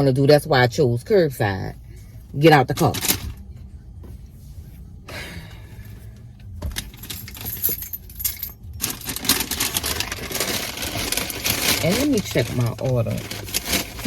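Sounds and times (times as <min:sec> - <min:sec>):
keys jangling: 0:06.7 - 0:09.1.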